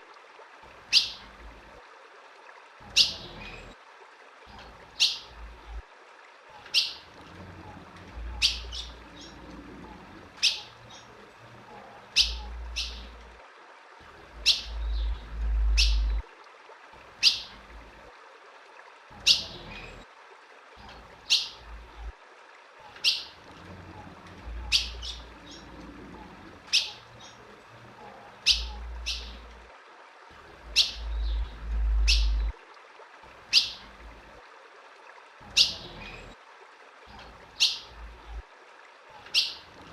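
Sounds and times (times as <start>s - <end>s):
bird chip calls: 6.7s - 7.0s, 8.3s - 9.4s, 10.4s - 11.1s, 12.1s - 13.2s, 14.4s - 16.2s, 17.2s - 17.6s, 23.0s - 23.4s, 24.6s - 25.7s, 26.7s - 27.4s, 28.4s - 29.5s, 30.7s - 32.5s, 33.5s - 33.8s, 37.1s - 37.9s, 39.2s - 39.6s
low rumble: 14.7s - 16.2s, 31.0s - 32.6s.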